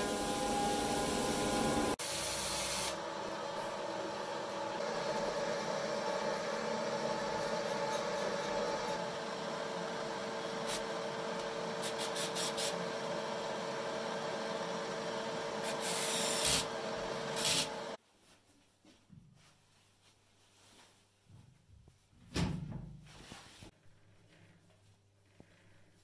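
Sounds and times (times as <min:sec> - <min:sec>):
sawmill machinery humming: 0:00.0 - 0:18.0.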